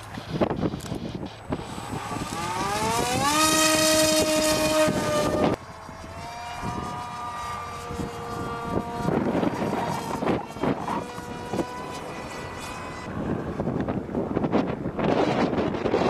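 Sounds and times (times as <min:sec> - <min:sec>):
model jet electric motor whining: 0:00.0 - 0:16.0.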